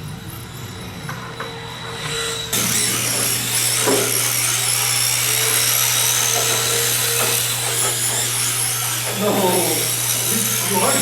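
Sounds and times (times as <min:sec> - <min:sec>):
rc car electric motors whining: 0:00.0 - 0:11.0.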